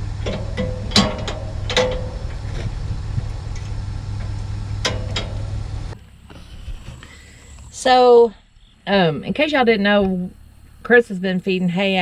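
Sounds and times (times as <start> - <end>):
engine idling: 0.0 - 12.0
sharp metallic clanks: 0.2 - 2.8, 3.5 - 5.6.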